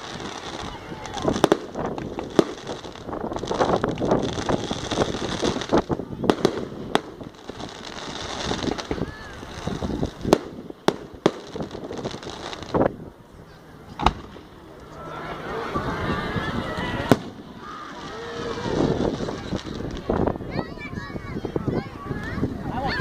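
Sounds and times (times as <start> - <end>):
fireworks bangs: 0.0 - 13.0, 14.0 - 14.8, 16.5 - 20.7
fireworks crackling: 0.0 - 22.8.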